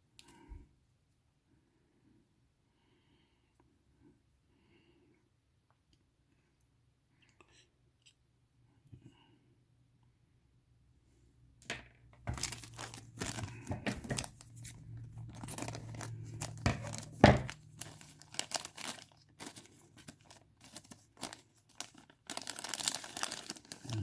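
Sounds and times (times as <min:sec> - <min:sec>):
plastic bag crinkling and tearing: 0:12.2 - 0:24.0.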